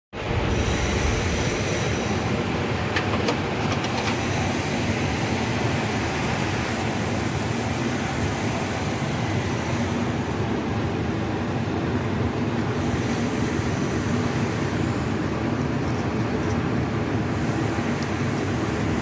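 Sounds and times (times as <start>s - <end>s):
loud mechanical rumble: 0.2s - 19.0s.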